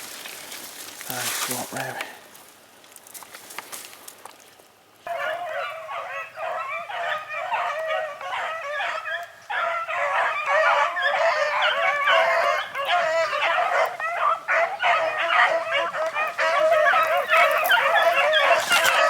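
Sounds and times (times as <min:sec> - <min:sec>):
beagles baying: 0:05.0 - 0:19.0.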